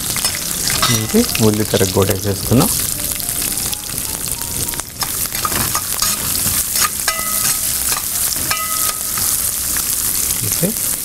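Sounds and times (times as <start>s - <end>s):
onions sizzling in oil: 0.0s - 11.0s
ringing metallic tone: 0.3s - 1.4s, 3.3s - 9.4s
metal spatula scraping pan: 5.0s - 9.3s.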